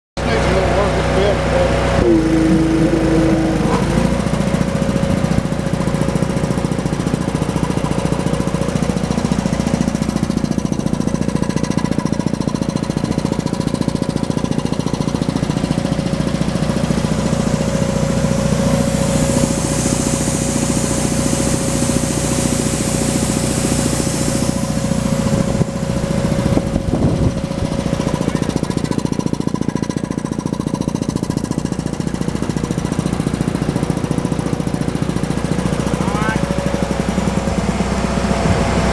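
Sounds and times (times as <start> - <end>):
air compressor running: 0.2 - 38.9
high air hiss: 2.1 - 7.2, 15.6 - 28.4.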